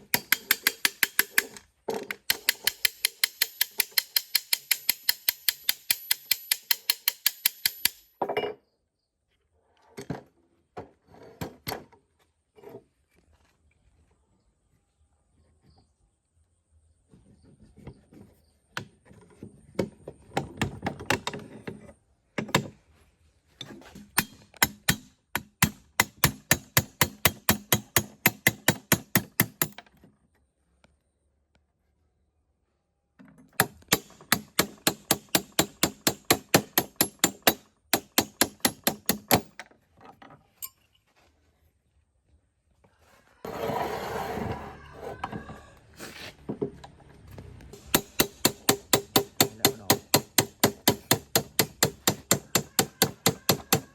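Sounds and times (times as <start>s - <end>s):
rapid sharp knocks: 33.6s - 39.5s, 47.8s - 53.9s
rough scraping noise: 43.4s - 46.5s.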